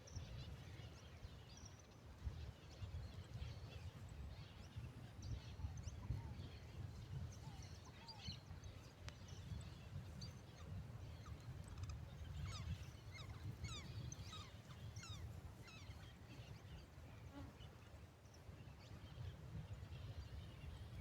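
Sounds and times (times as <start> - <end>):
birds chirping: 9.4 - 17.5.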